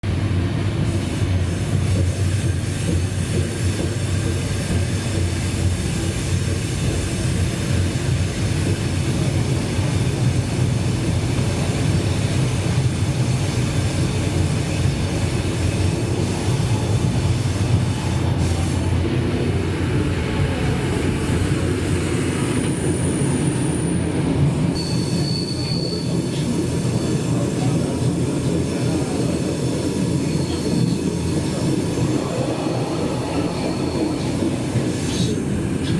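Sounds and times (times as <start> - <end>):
train wheels rumbling on rails: 0.0 - 35.9
wheel squeals: 24.8 - 27.2.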